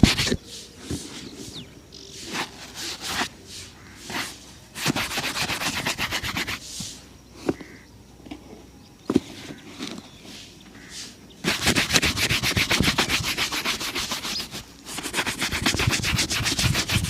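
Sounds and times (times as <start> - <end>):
brush scrubbing shoe: 0.0 - 1.6, 2.2 - 7.0, 11.4 - 17.0.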